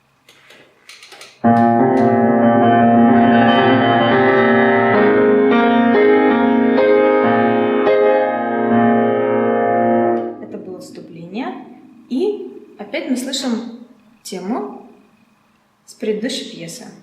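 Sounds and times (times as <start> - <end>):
piano chordal tremolo: 1.4 - 12.6.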